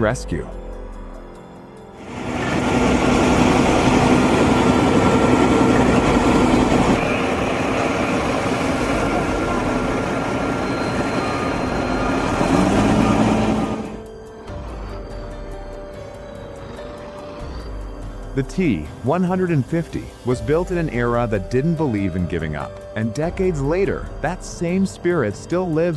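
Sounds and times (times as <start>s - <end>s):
heavy vehicle engine droning: 2.0s - 19.0s.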